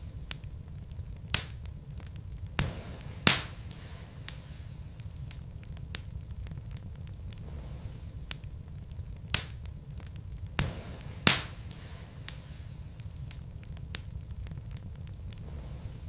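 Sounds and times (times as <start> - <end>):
fire rumbling: 0.0 - 16.0
logs crackling: 0.0 - 16.0
sharp pops of burning logs: 0.0 - 16.0.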